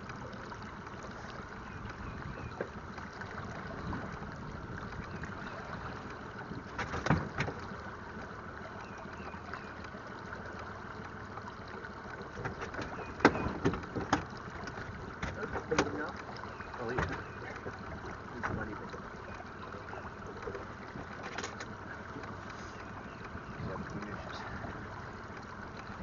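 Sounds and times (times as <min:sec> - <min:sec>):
water noise: 0:00.0 - 0:26.0
wind: 0:00.0 - 0:26.0.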